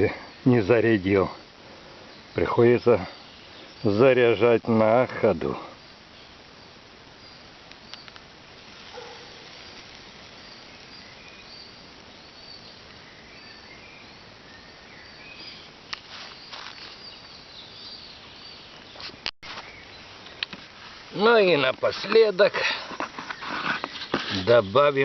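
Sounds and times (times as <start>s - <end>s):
outdoor background hiss: 0.0s - 25.0s
small birds chirping: 0.0s - 25.0s
sharp clicks: 7.6s - 8.3s.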